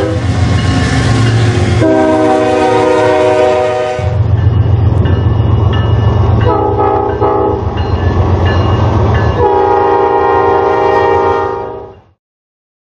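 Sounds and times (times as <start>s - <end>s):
locomotive air horn blasts: 0.0s - 0.4s, 1.8s - 4.2s, 6.4s - 7.7s, 9.4s - 12.0s
train rolling by rumble: 0.0s - 12.2s.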